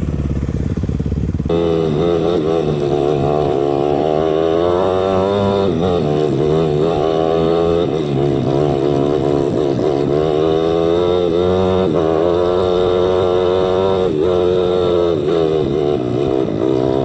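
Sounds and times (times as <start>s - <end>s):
motorcycle engine revving under load: 0.0s - 17.0s.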